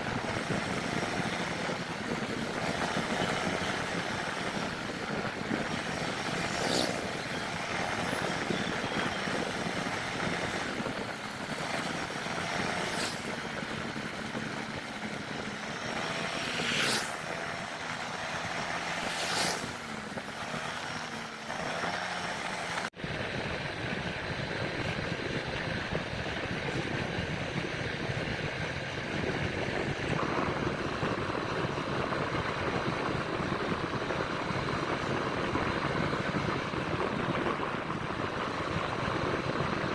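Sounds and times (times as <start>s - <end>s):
scooter engine running: 0.0s - 39.9s
wind and road noise: 0.0s - 39.9s
brief swishes: 19.0s - 19.8s.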